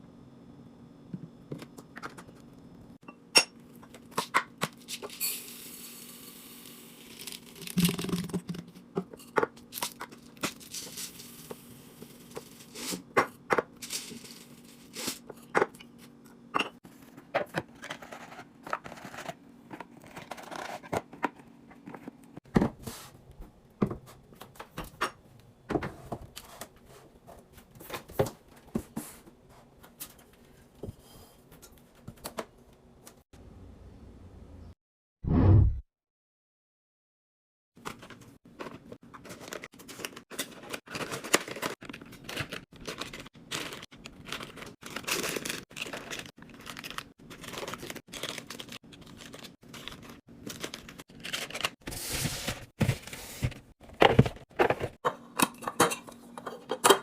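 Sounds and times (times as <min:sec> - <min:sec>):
plastic packaging tearing and crinkling: 0:39.3 - 0:52.4
items knocking and clicking: 0:52.5 - 0:57.0.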